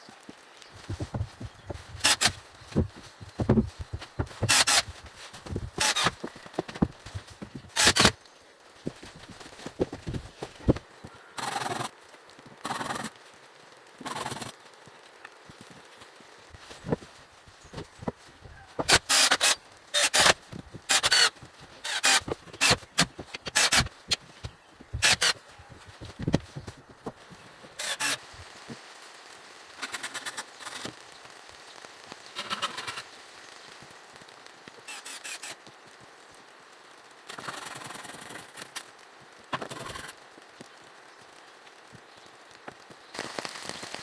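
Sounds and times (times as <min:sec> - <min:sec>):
rasping bursts: 0:00.8 - 0:08.2, 0:18.8 - 0:24.2, 0:24.9 - 0:26.4, 0:27.8 - 0:28.3.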